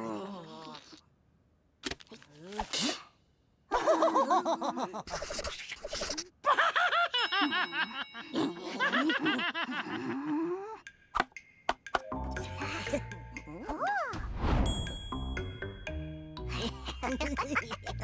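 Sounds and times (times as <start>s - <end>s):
cartoon characters laughing: 16.5s - 18.0s.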